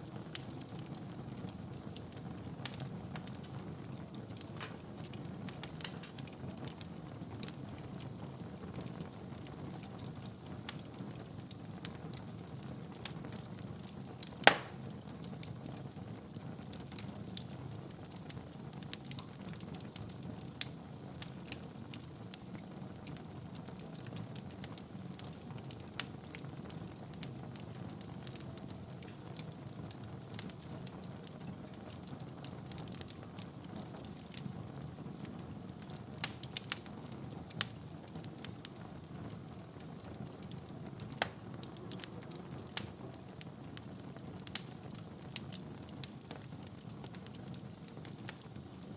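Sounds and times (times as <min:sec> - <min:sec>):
wood fire crackling: 0:00.0 - 0:48.9
loud fire pop: 0:04.6 - 0:04.9, 0:14.4 - 0:14.9.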